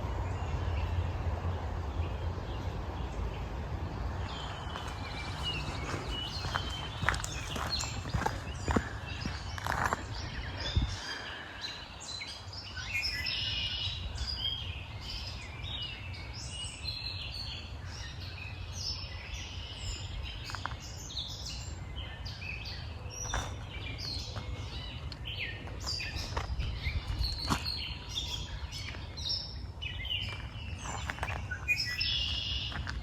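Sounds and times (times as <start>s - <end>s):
steady low rumble: 0.0s - 12.7s, 13.9s - 33.0s
birds singing and chirping: 0.0s - 33.0s
footsteps knocking: 4.7s - 10.0s.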